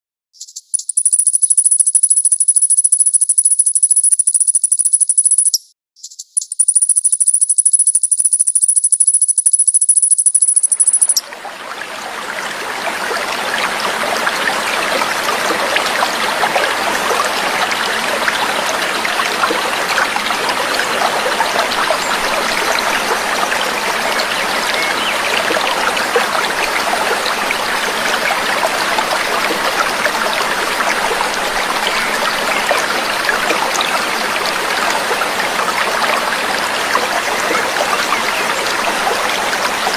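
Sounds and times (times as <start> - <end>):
high steady trill: 0.8 - 5.6, 6.4 - 11.2
babbling stream water: 10.8 - 39.9.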